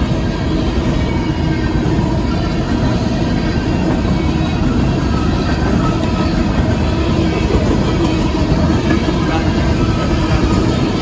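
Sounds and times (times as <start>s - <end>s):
train wheels rolling on rails: 0.0s - 11.0s.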